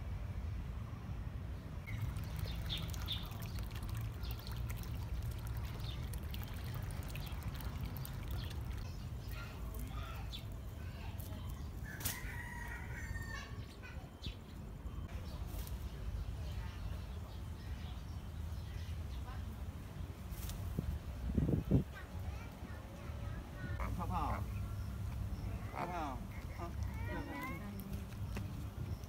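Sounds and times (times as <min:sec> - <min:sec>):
drawn-out bird call: 0:01.9 - 0:10.4.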